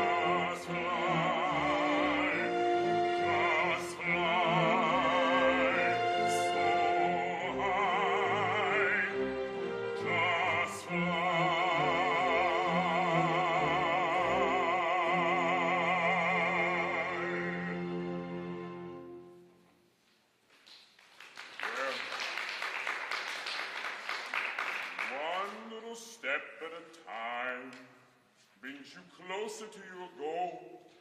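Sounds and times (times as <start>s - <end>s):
operatic singing with vibrato: 0.0s - 19.6s, 24.8s - 31.0s.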